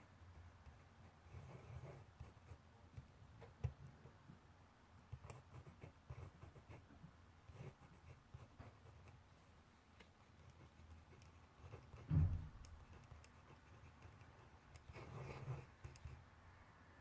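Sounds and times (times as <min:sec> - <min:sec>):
pen scratching on paper: 0:00.6 - 0:02.6, 0:05.1 - 0:06.8, 0:07.5 - 0:09.2, 0:10.2 - 0:16.2
sharp knock: 0:12.0 - 0:12.7.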